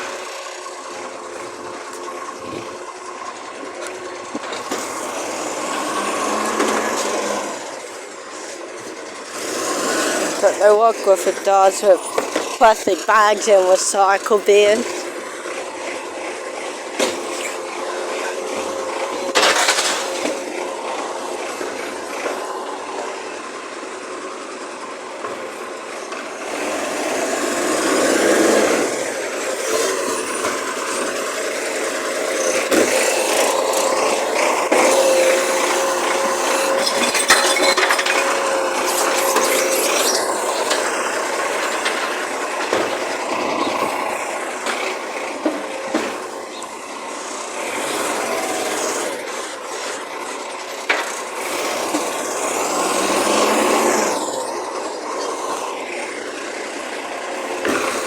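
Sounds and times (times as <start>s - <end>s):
garbage truck engine whine: 0.0s - 58.0s
sharp clatter: 18.5s - 20.6s, 32.3s - 46.7s.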